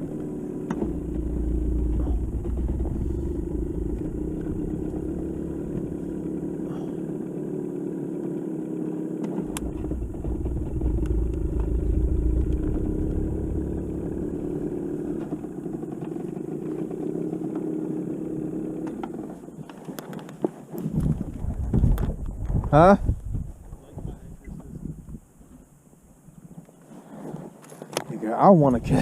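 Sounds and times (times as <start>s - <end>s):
boat motor running: 0.0s - 20.4s.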